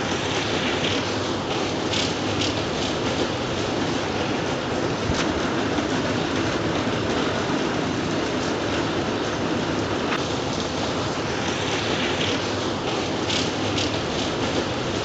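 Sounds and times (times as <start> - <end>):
steady rain white noise: 0.0 - 15.0.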